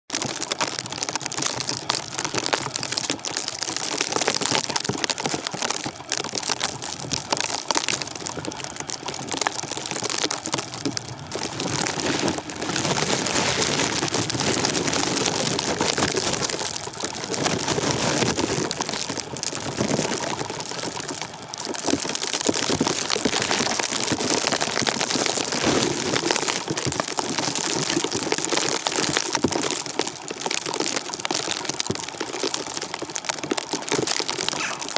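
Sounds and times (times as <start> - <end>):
blizzard wind and driven snow: 10.8 - 20.4.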